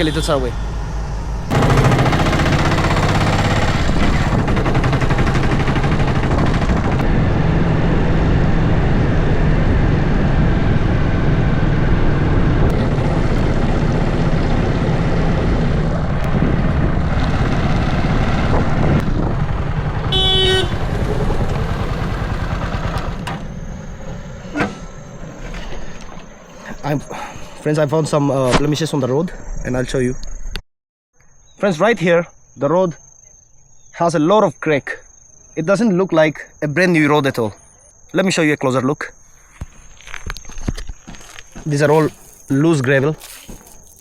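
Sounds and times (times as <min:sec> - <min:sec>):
road noise: 0:00.0 - 0:04.6, 0:06.2 - 0:30.4, 0:39.1 - 0:44.0
vehicle engine rumble: 0:00.0 - 0:27.6
car horn toot: 0:20.1 - 0:21.5.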